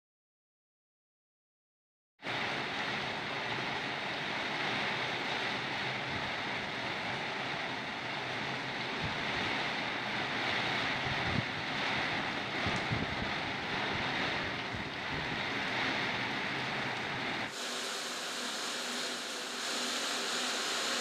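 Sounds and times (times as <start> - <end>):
heavy rain pouring: 2.2 - 21.0
wind gusting across microphone: 2.3 - 17.6.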